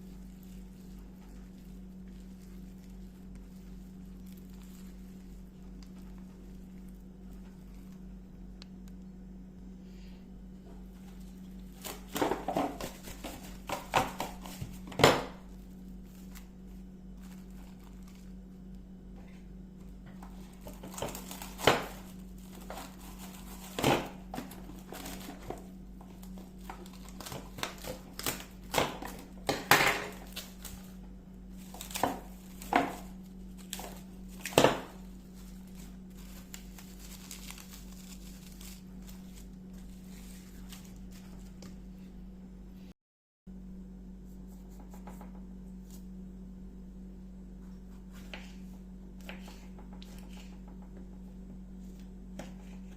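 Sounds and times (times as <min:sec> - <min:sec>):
crinkling and crumpling: 0:00.0 - 0:09.1, 0:10.6 - 0:42.0
low hum: 0:00.0 - 0:42.9
kitchen knocks and clatters: 0:27.2 - 0:30.3.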